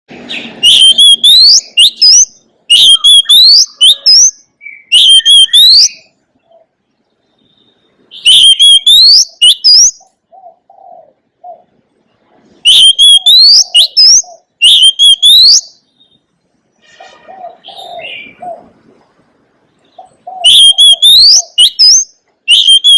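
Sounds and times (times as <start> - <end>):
bird whistled song phrases: 0.2 - 6.2, 7.4 - 10.1, 12.6 - 16.2, 20.0 - 22.9.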